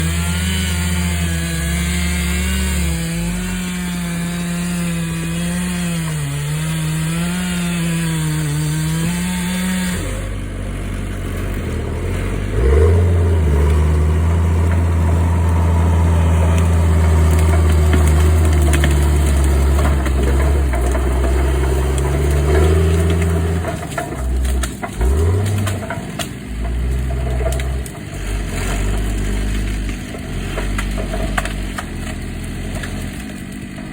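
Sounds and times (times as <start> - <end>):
chainsaw cutting: 0.0 - 33.9
low steady engine: 9.9 - 33.9.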